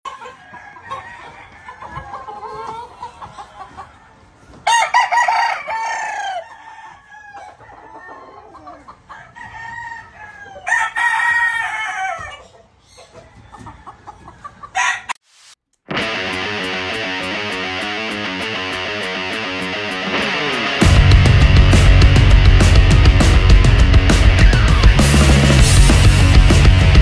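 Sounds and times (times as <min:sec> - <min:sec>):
chickens clucking: 0:00.0 - 0:15.2
roosters crowing: 0:00.1 - 0:12.5, 0:13.2 - 0:15.2
guitar music: 0:15.9 - 0:27.0.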